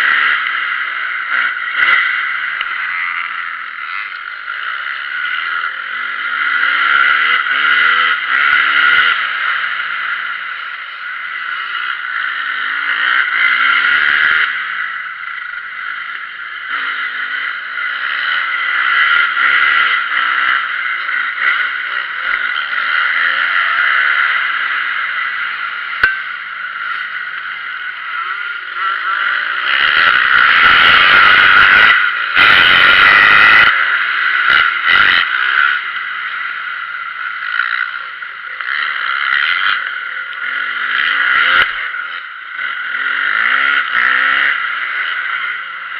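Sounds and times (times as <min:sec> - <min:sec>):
motocross bike engines revving: 0:00.0 - 0:45.9.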